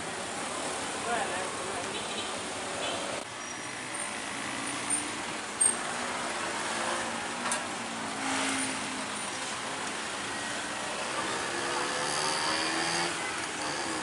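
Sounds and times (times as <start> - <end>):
road traffic rushing: 0.0 - 14.0
passing engine: 10.9 - 14.0.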